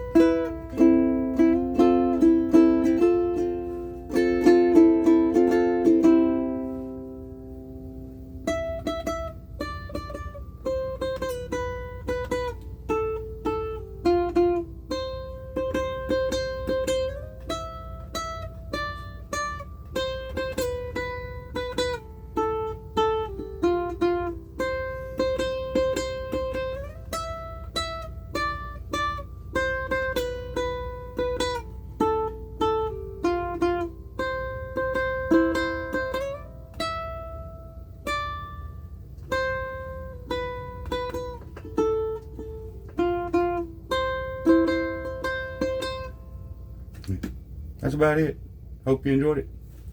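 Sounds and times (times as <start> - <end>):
ukulele picking a tune: 0.0 - 47.6.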